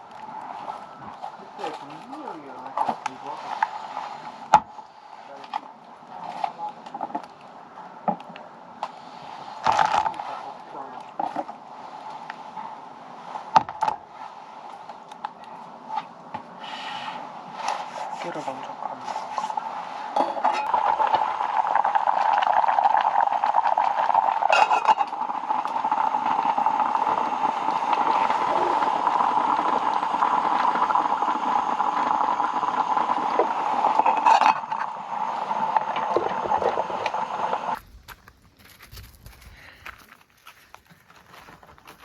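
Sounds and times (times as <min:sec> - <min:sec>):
food sizzling: 0:18.9 - 0:37.8.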